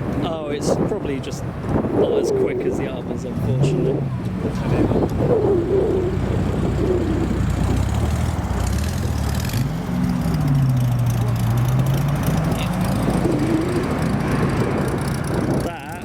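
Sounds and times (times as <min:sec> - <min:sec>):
car engine driving past: 0:03.4 - 0:15.6.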